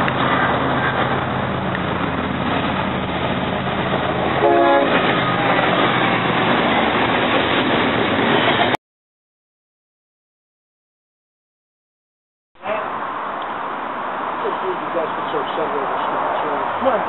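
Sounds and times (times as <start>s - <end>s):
freight train rumbling past: 0.0s - 8.8s, 12.6s - 17.0s
train horn blast: 4.4s - 5.2s.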